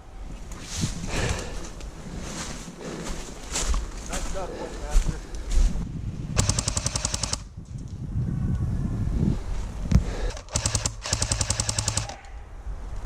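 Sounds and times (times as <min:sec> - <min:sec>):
airsoft gun full-auto bursts: 0:06.4 - 0:07.5, 0:10.3 - 0:12.2.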